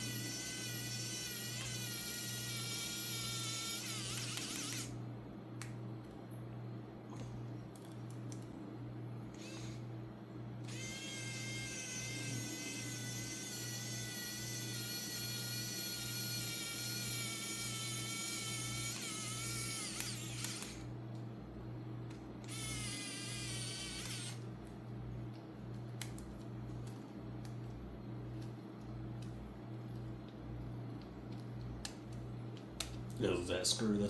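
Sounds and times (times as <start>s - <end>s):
electric screwdriver whining: 0.0s - 5.0s, 9.3s - 9.8s, 10.6s - 20.9s, 22.4s - 24.4s.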